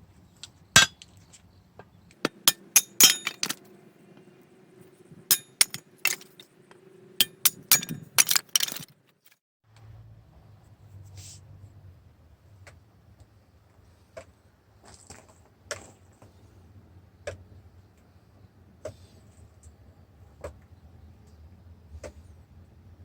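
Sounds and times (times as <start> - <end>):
firewood struck on axe head: 2.3 - 3.6, 5.3 - 6.4, 7.2 - 8.8.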